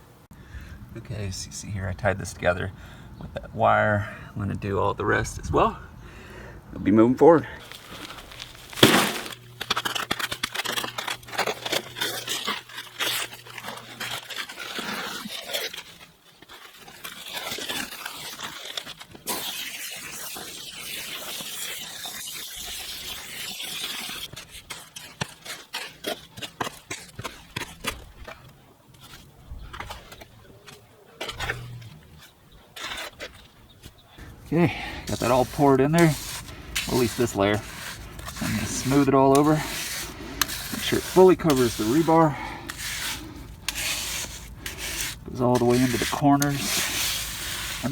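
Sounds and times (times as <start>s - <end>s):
wet concrete scraping and knocking: 7.6s - 20.2s, 34.2s - 47.9s.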